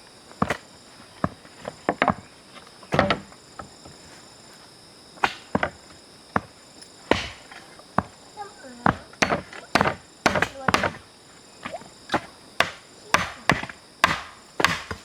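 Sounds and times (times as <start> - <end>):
insects chirring: 0.0 - 15.0
tool knocking on wood: 8.8 - 11.0, 12.1 - 15.0.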